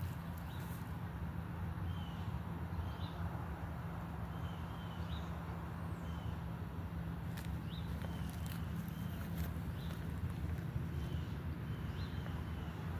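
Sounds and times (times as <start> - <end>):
bird chirping: 10.9 - 12.9.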